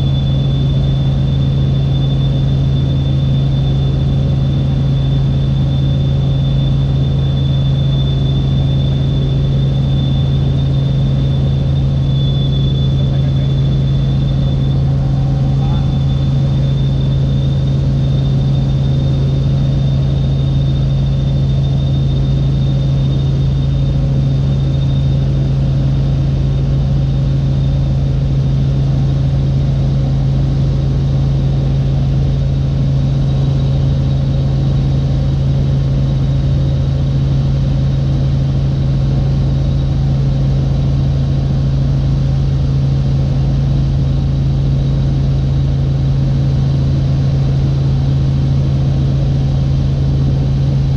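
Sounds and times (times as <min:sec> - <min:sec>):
thin high whine: 0:00.0 - 0:28.2
helicopter engine and rotor drone: 0:00.0 - 0:50.9.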